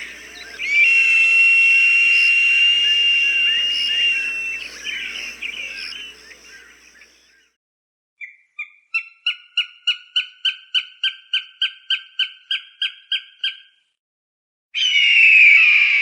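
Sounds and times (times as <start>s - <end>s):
hawk scream: 0.0s - 6.7s
hawk calling: 0.0s - 7.2s.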